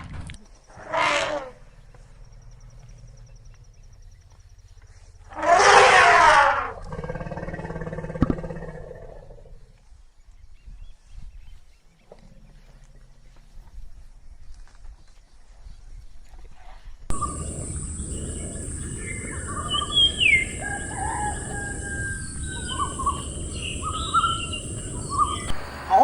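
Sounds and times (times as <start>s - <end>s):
large animal roaring: 5.4s - 9.6s, 17.1s - 26.0s.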